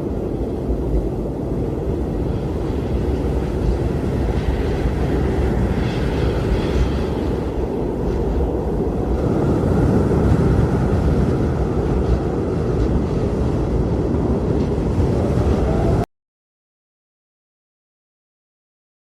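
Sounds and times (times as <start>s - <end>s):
blizzard wind rumbling: 0.0s - 16.1s.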